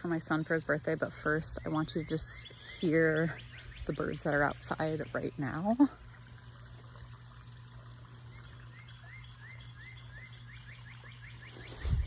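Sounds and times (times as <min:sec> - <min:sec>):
faint steady hum: 0:00.0 - 0:12.0
wild bird chirping: 0:08.3 - 0:12.0.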